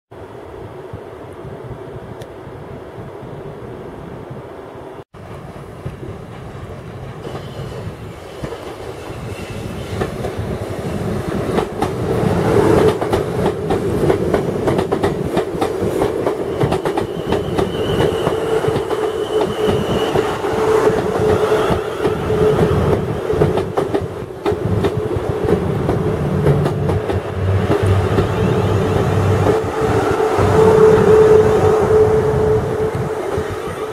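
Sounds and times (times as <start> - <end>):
train arriving rumble: 0.2 - 33.9
train steady whine: 0.2 - 33.9.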